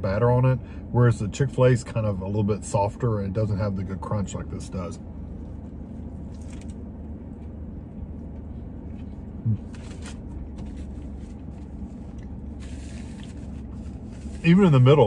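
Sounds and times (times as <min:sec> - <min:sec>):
low hum inside car: 0:00.0 - 0:15.0
man chewing crispy food: 0:05.4 - 0:07.6, 0:08.3 - 0:14.3.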